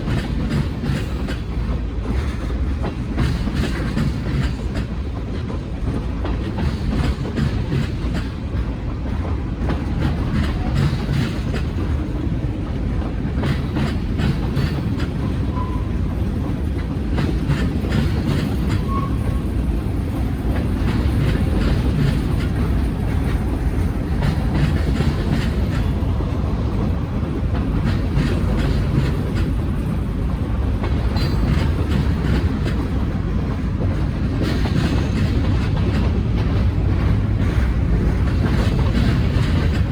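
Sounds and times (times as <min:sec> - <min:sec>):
freight train rolling past: 0:00.0 - 0:39.9
wheels clicking over rail joints: 0:00.0 - 0:39.9.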